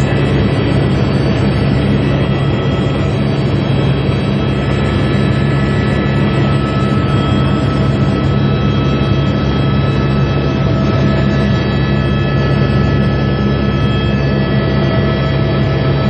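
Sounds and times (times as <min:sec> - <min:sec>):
constant whining tones: 0:00.0 - 0:16.0
helicopter engine and rotor drone: 0:00.0 - 0:16.0.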